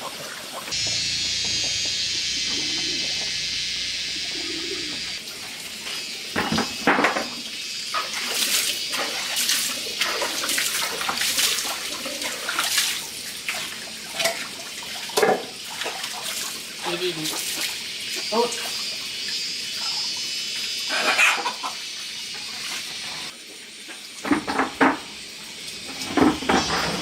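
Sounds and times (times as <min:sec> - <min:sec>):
water pouring: 0:08.0 - 0:17.8.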